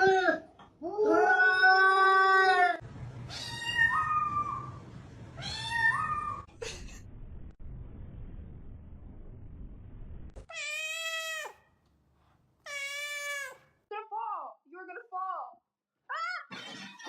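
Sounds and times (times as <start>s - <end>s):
cat meowing: 1.0s - 4.8s, 10.5s - 11.6s, 12.6s - 13.6s.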